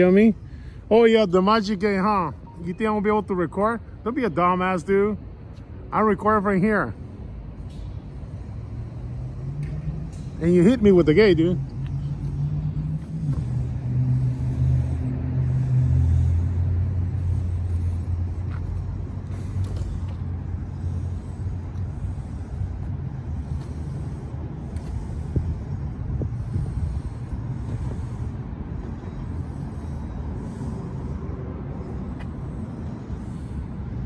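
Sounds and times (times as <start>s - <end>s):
street noise: 0.0s - 34.0s
vehicle engine running: 7.2s - 34.0s.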